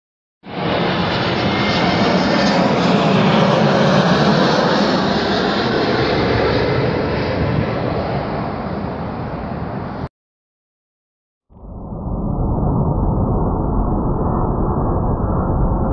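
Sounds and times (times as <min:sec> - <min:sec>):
airliner jet noise overhead: 0:00.4 - 0:10.1.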